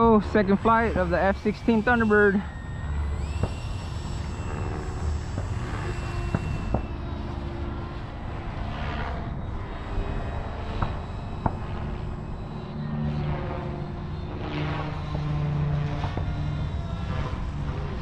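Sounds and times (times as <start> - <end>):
electric fan whining: 0.0 - 18.0
sharp clicks: 0.5 - 7.0.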